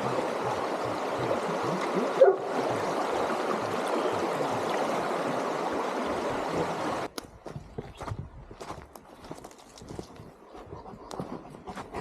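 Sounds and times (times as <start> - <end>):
stream water rushing: 0.0 - 7.1.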